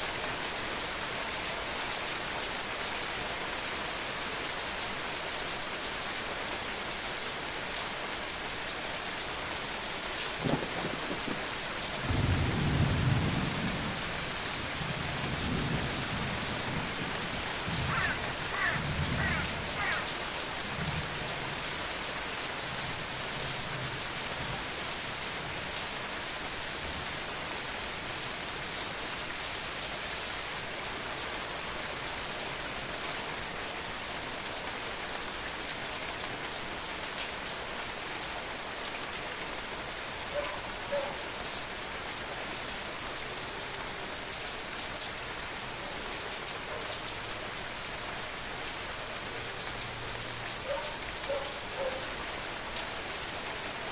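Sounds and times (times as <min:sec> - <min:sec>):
steady rain falling: 0:00.0 - 0:53.9
rolling thunder: 0:10.4 - 0:14.0.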